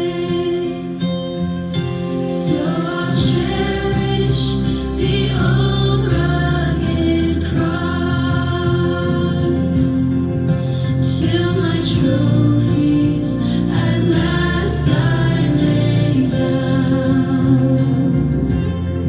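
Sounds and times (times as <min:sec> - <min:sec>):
voices singing a hymn: 0:00.0 - 0:19.0.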